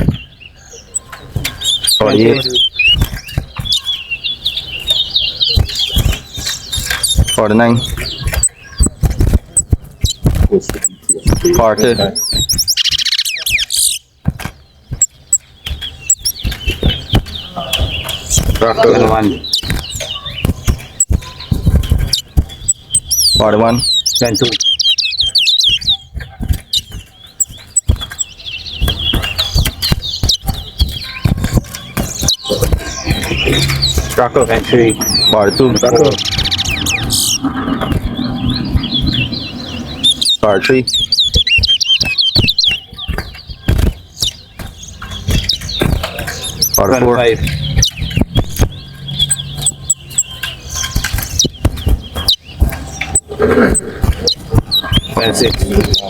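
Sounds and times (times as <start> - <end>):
finch singing: 0.0 - 56.0
sharp knocks: 25.7 - 56.0
low rumbling: 32.6 - 41.2.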